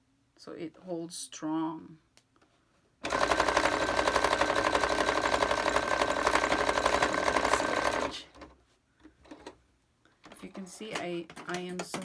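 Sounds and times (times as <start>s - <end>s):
sewing machine stitching: 3.0s - 8.6s, 9.2s - 9.6s.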